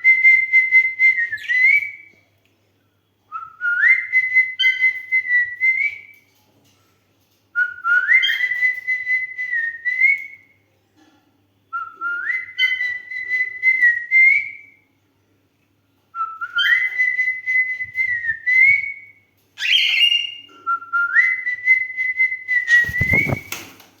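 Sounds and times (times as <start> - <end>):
cockatiel whistling a tune: 0.1 - 2.1, 3.6 - 6.1, 7.6 - 10.4, 11.8 - 14.7, 16.2 - 23.6.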